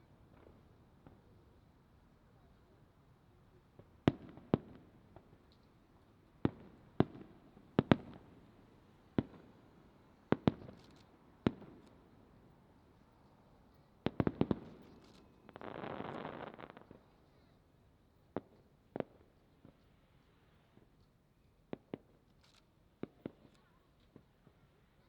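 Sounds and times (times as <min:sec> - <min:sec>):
fireworks bangs with low rumble: 0:03.8 - 0:05.5, 0:06.4 - 0:08.5, 0:14.0 - 0:17.1.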